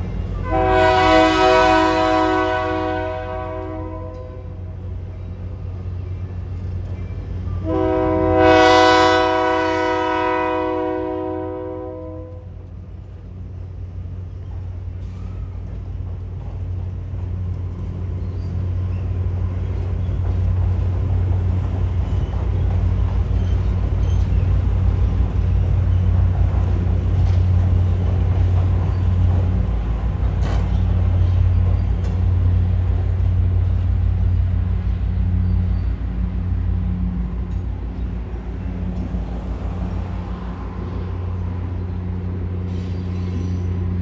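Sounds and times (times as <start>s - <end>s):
train engine rumble: 0.0s - 44.0s
diesel train horn blast: 0.4s - 4.8s, 7.5s - 12.6s.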